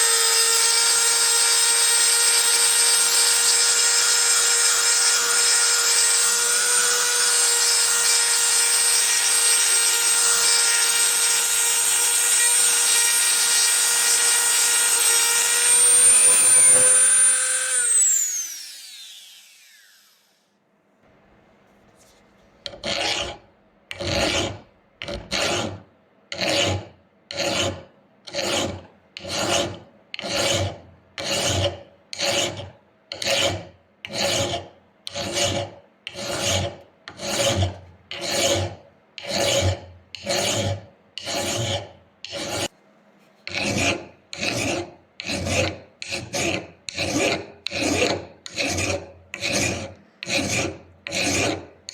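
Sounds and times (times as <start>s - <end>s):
hand filing rasping: 0.0s - 18.4s, 22.7s - 42.7s, 43.5s - 51.9s
power tool motor whining: 14.6s - 20.3s.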